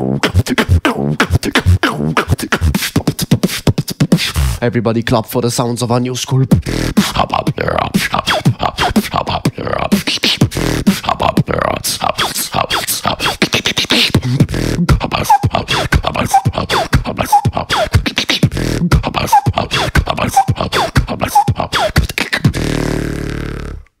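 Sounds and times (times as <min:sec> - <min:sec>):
person beatboxing: 0:00.0 - 0:04.6, 0:06.2 - 0:23.9
low buzzing bass note: 0:22.6 - 0:23.9.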